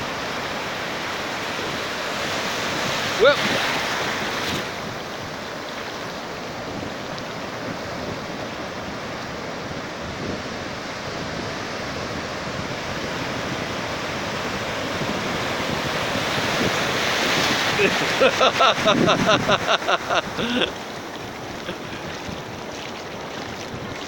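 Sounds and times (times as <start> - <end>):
waves breaking: 0.0 - 24.0
wind buffeting microphone: 1.5 - 24.0.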